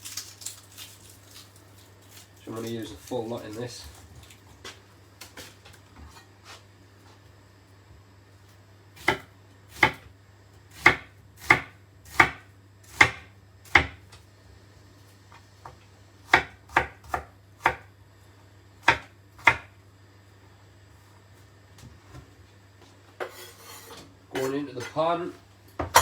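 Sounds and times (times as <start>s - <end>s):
knife chopping onion on board: 9.0s - 10.1s, 10.7s - 14.1s, 15.6s - 17.9s, 18.8s - 19.8s.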